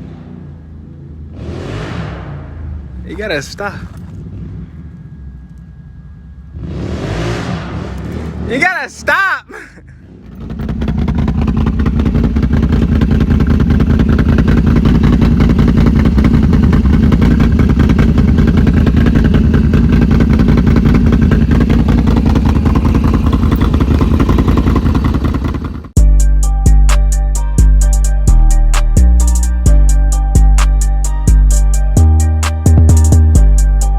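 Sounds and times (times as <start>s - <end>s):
loud engine running: 0.0s - 26.2s.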